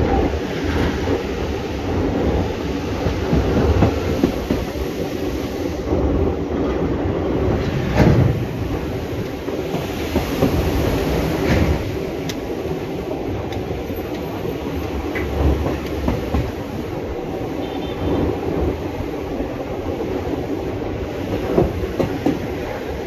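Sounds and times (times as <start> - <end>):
train wheels rumbling on rail: 0.0 - 23.0
knocks from the track: 7.6 - 8.6, 9.6 - 12.4, 21.4 - 22.6.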